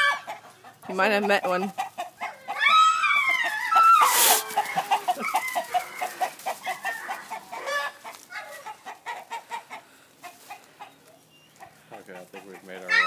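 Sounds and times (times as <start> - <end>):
chickens clucking: 0.0 - 13.0
rooster crowing: 2.5 - 8.0.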